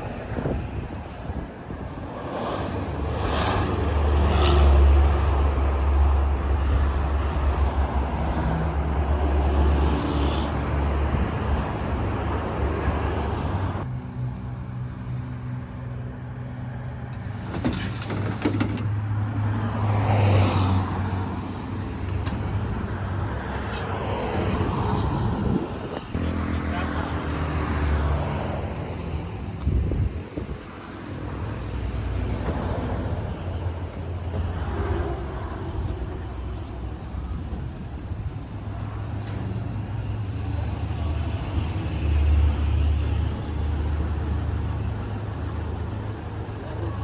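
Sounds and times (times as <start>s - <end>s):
road traffic noise: 0.0s - 47.0s
vehicle engine running: 32.6s - 47.0s.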